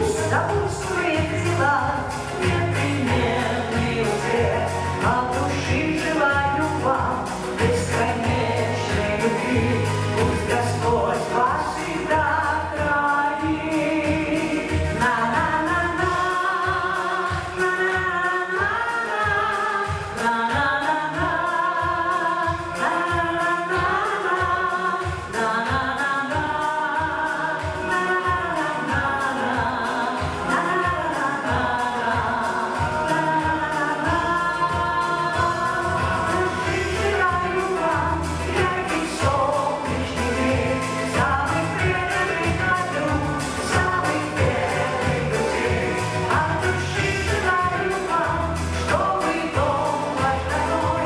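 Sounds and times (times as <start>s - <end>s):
instrumental accompaniment with beat: 0.0s - 51.0s
person singing: 0.0s - 51.0s.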